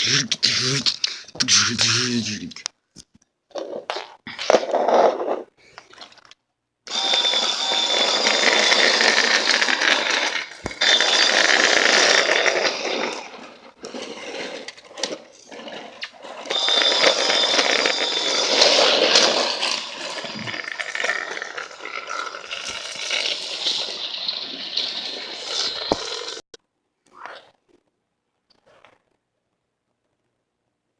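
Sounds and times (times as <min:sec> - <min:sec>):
high whine: 0:06.9 - 0:13.8, 0:16.4 - 0:26.5
toy train motor whirring: 0:06.9 - 0:26.4
wheel rattle: 0:06.9 - 0:26.4.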